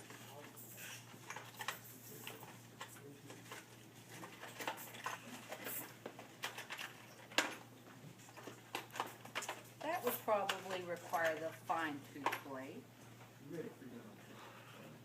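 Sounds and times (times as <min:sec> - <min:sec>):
hard objects clicking and knocking: 0:01.0 - 0:11.5.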